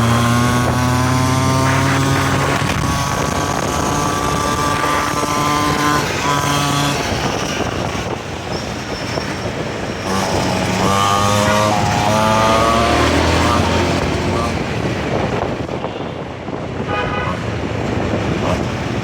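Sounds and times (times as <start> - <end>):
two-stroke mini bike engine running: 10.0 - 14.6.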